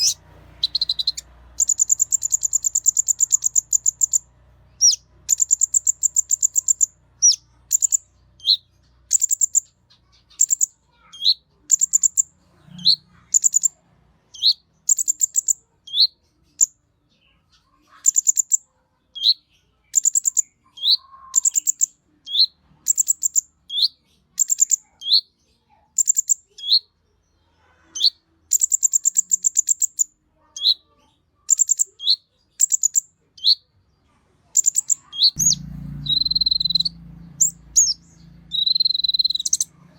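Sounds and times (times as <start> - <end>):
bird singing high trill: 0.0 - 13.8, 14.4 - 16.2, 20.0 - 25.3, 34.6 - 39.7.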